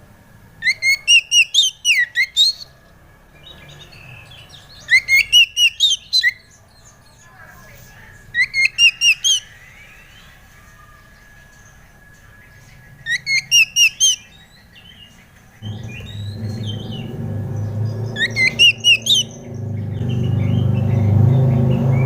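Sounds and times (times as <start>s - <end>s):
bird whistling song: 0.6s - 2.7s, 3.4s - 7.0s, 8.3s - 10.4s, 11.5s - 22.0s
soft bird chattering: 0.6s - 2.7s, 4.8s - 6.5s, 7.2s - 9.5s, 13.0s - 14.3s, 17.8s - 20.2s
low drone: 15.5s - 22.0s.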